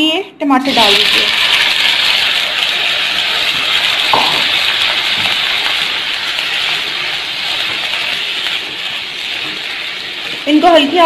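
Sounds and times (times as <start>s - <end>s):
tomatoes sizzling in frying pan: 0.6s - 11.0s.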